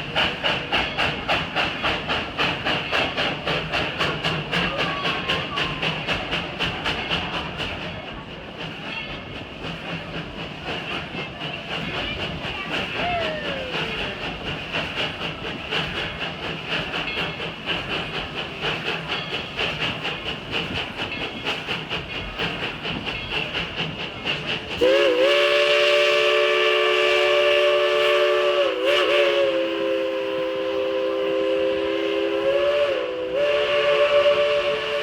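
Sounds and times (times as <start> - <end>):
rail clatter: 0.0 - 35.0
steam train chuffing: 0.0 - 35.0
chime steam whistle: 11.7 - 35.0.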